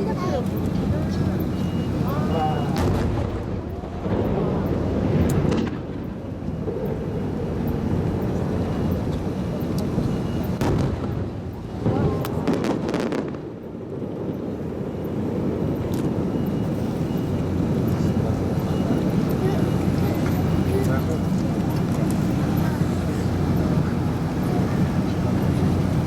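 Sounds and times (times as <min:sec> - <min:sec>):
crowd talking: 0:00.0 - 0:13.2, 0:14.6 - 0:26.0
fireworks booming: 0:01.0 - 0:09.2, 0:09.9 - 0:19.1
sharp firework cracks: 0:02.8 - 0:04.3, 0:10.6 - 0:13.6.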